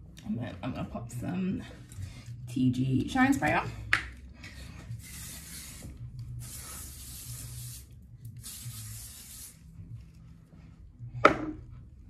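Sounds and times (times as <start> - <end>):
hair spray hissing: 5.0 - 9.6.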